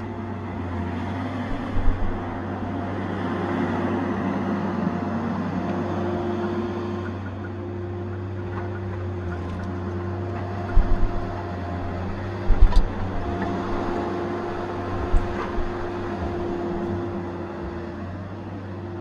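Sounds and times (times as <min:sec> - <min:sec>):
diesel engine running: 0:00.0 - 0:19.0
short low thumps: 0:10.7 - 0:17.0.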